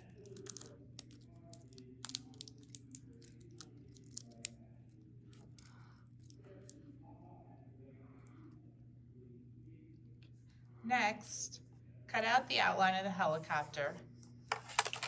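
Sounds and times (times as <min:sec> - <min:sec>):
small clicks and crinkles: 0:00.0 - 0:07.0, 0:14.2 - 0:15.0
steady low hum: 0:00.0 - 0:14.5.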